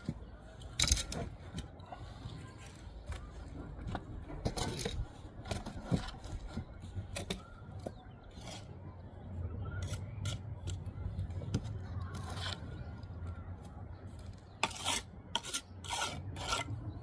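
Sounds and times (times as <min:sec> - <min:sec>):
trowel scraping mortar and brick: 0:04.4 - 0:08.8, 0:12.1 - 0:12.8, 0:14.1 - 0:17.0.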